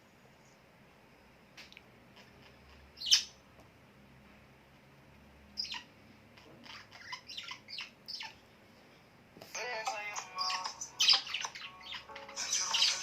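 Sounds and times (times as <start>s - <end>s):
birds chirping: 2.2s - 3.4s, 5.5s - 8.5s, 9.7s - 13.0s.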